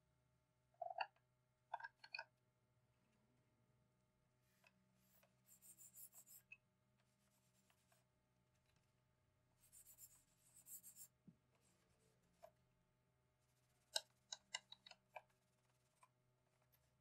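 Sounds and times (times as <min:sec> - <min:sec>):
scratchy rubbing by hand: 0:05.5 - 0:06.5, 0:09.6 - 0:11.1.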